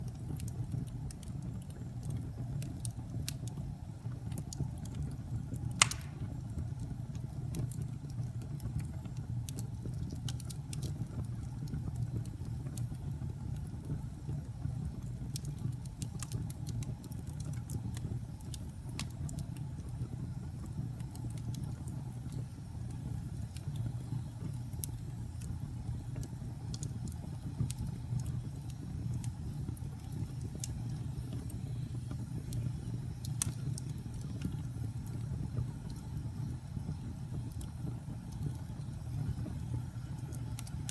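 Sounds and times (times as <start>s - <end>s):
small fire crackles: 0.0s - 40.9s
wood fire burning: 0.0s - 40.9s
loud sharp pop of fire: 5.8s - 6.5s.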